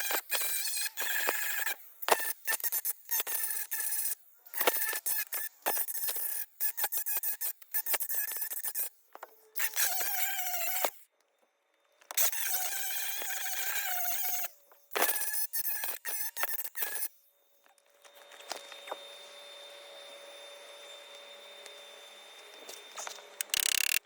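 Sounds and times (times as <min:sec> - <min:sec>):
welding arc crackling: 0:23.4 - 0:24.0.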